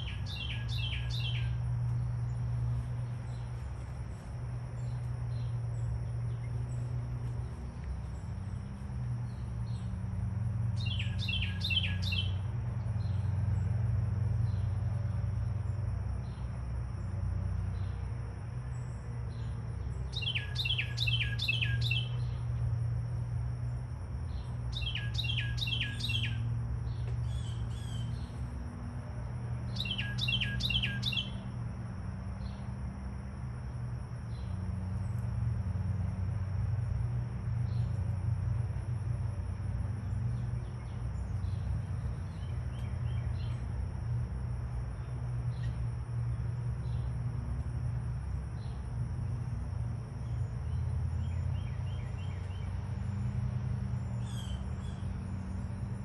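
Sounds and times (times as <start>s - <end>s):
low steady rumble: 0.0s - 56.0s
songbird whistled notes: 10.8s - 12.4s, 20.2s - 22.3s, 24.8s - 26.4s, 29.8s - 31.4s.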